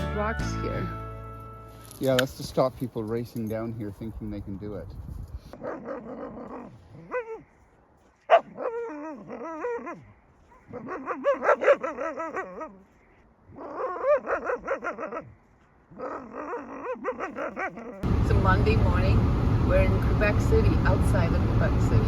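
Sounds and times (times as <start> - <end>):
dog yipping: 5.6 - 7.5, 8.3 - 12.8, 13.5 - 15.3, 16.0 - 18.0
dog whining and yowling: 8.3 - 12.9, 13.5 - 18.0.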